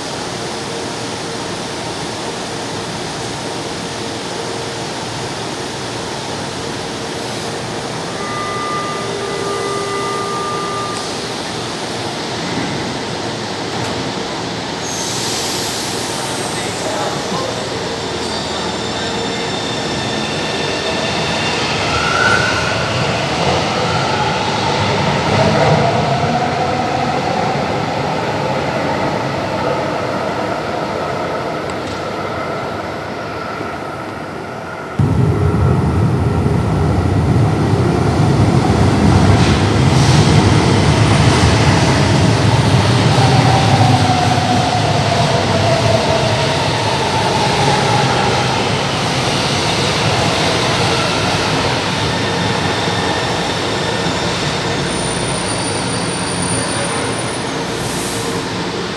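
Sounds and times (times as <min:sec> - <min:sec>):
electric train motors whining: 0:07.2 - 0:12.2.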